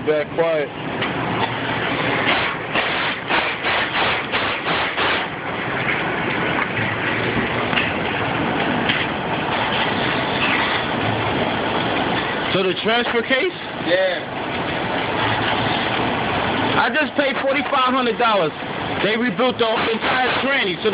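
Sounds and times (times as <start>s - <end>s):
pickup truck engine rumbling: 0.0s - 20.9s
rapid engine knocks: 1.0s - 9.9s, 19.0s - 20.9s.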